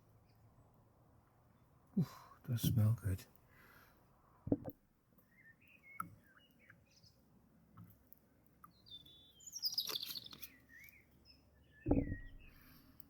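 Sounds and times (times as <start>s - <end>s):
birds chirping: 5.2s - 7.3s, 8.6s - 13.0s.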